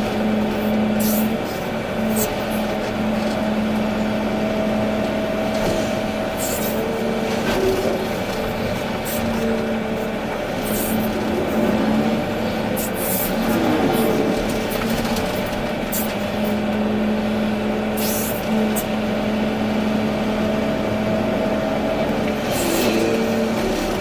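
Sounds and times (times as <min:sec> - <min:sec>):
excavator diesel engine running: 0:00.0 - 0:24.0
short hydraulic hisses: 0:06.4 - 0:06.8.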